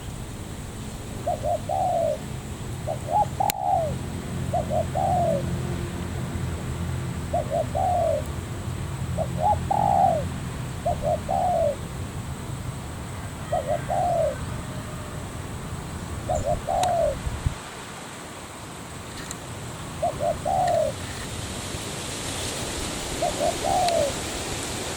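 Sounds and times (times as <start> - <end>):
dove cooing: 1.1 - 6.1, 7.1 - 8.4, 9.0 - 17.3, 19.8 - 21.3, 22.8 - 24.5.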